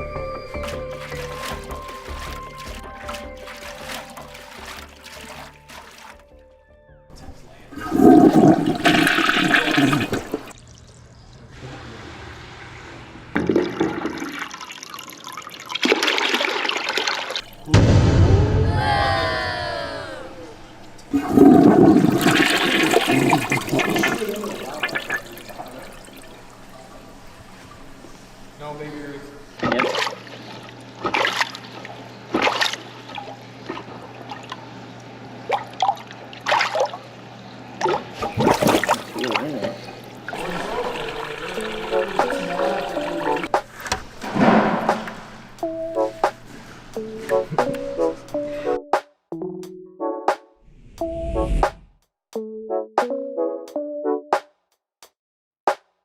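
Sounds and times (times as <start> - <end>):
toilet flushing: 0.0 - 6.2, 7.2 - 17.7, 20.9 - 34.6, 37.8 - 48.2
water trickling and splashing: 0.4 - 6.4, 7.7 - 11.7, 13.3 - 17.7, 20.9 - 34.7, 37.8 - 48.0.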